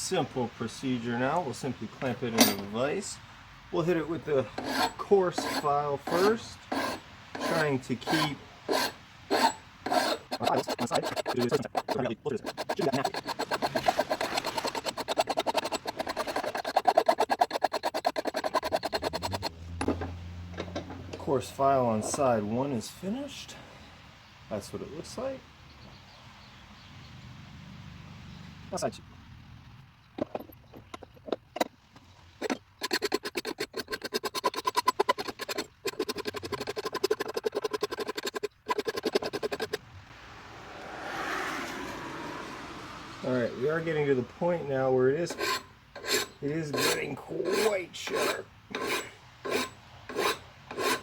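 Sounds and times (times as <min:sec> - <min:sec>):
file rasping on steel: 0:04.3 - 0:19.6, 0:32.4 - 0:39.8, 0:45.2 - 0:51.0.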